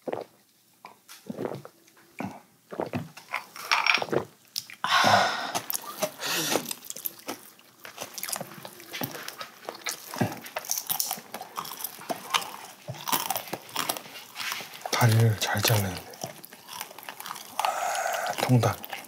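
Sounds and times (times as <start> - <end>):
biting and chewing: 5.5 - 19.0.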